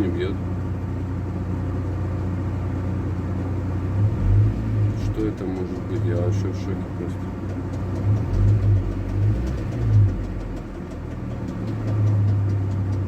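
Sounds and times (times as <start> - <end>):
car engine idling: 0.0 - 13.0
faint engine knock: 4.9 - 13.0.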